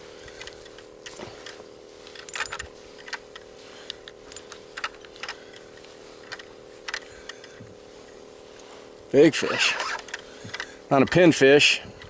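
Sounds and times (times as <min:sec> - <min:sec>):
fishing reel clicking: 0:00.2 - 0:07.6, 0:09.1 - 0:12.0.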